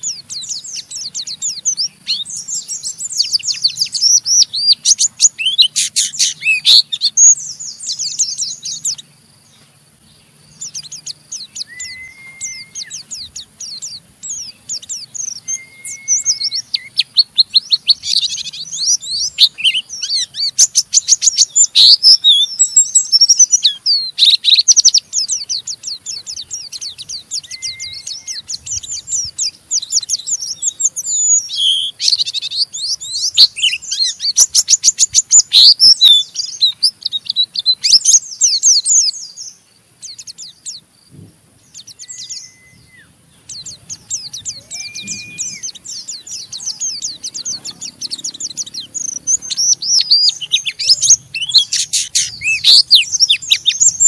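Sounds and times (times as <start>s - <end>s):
bird twittering song: 0.0s - 54.0s
short whistled bird notes: 11.4s - 13.2s, 13.8s - 18.3s, 26.8s - 30.4s, 41.1s - 48.4s.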